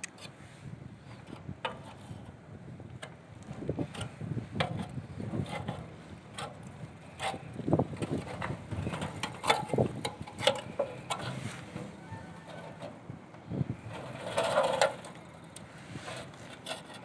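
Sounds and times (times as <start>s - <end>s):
short scraping sounds: 10.6s - 13.0s.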